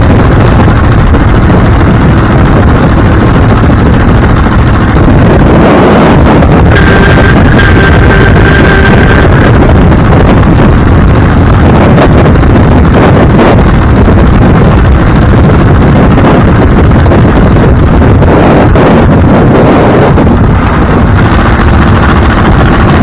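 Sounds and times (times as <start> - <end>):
vehicle driving rumble: 0.0 - 23.0
wind rushing over microphone: 0.0 - 23.0
thin steady tone: 4.4 - 9.7.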